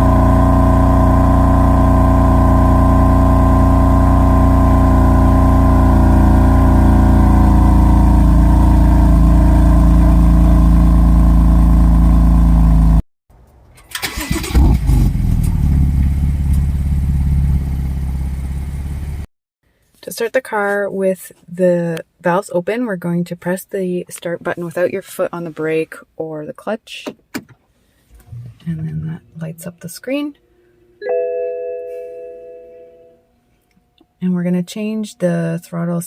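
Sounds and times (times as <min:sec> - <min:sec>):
car engine idling: 0:00.0 - 0:13.0, 0:15.2 - 0:19.2
car engine starting: 0:00.0 - 0:13.0, 0:13.8 - 0:19.3.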